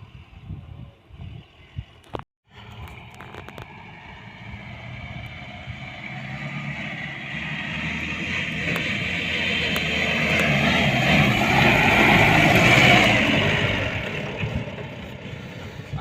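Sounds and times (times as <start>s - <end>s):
diesel engine labouring: 2.5s - 16.0s.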